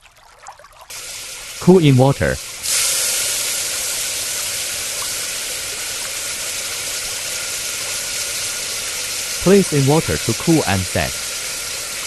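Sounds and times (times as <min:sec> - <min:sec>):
hot metal quenched in water hissing: 0:00.9 - 0:12.0.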